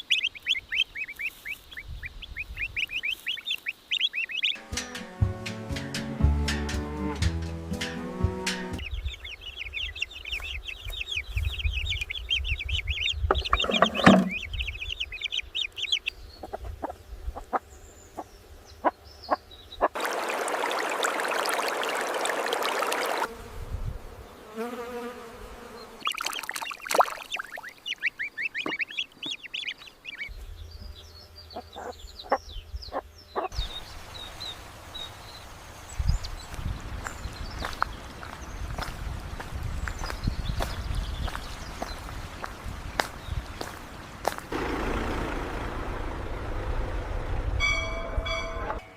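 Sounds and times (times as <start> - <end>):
poultry chirping and clucking: 0.0 - 4.6, 8.8 - 19.9, 27.9 - 30.4, 31.3 - 33.8
knocks and clicks: 13.3 - 14.4.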